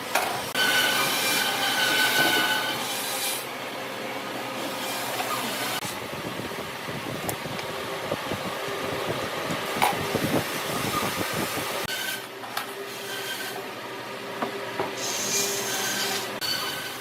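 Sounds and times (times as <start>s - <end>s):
whining power tool: 0.5s - 3.2s.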